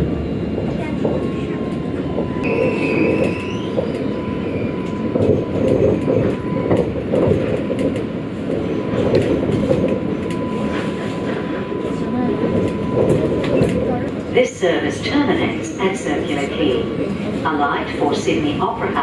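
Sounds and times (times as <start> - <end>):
tram wheels rumbling on rail: 0.0 - 19.0
rising squeal: 2.2 - 6.7.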